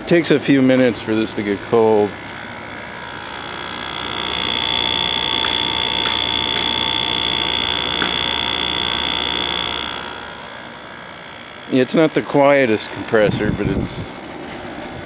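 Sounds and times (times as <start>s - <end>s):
air conditioner hum: 0.0s - 15.0s
high-pitched compressor whine: 0.0s - 15.0s.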